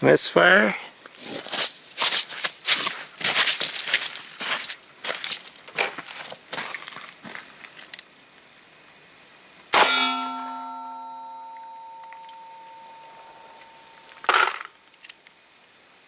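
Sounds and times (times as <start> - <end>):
sharp metallic clang ringing: 9.7 - 14.7.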